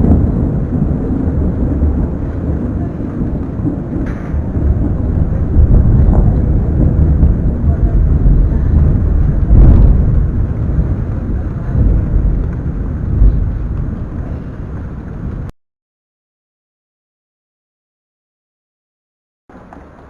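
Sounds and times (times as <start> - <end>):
thunder rumbling: 0.0 - 15.5.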